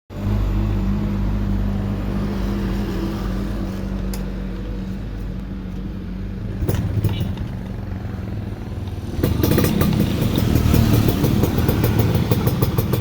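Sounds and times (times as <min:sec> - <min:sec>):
two-stroke motorcycle engine idling: 0:04.6 - 0:13.0.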